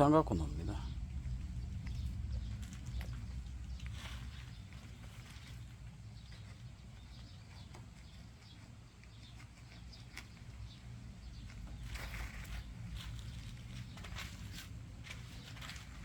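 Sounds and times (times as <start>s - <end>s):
steady low rumble: 0.0s - 7.6s
rustling: 0.6s - 16.0s.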